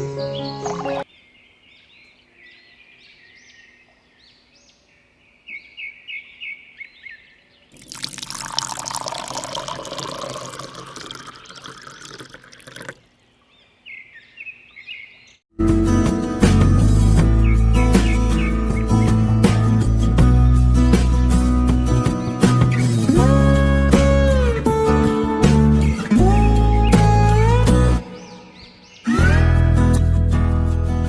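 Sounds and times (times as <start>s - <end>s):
small birds chirping: 0.0s - 7.9s, 10.2s - 15.5s, 17.4s - 19.6s, 25.8s - 29.2s
water pouring: 7.8s - 13.0s.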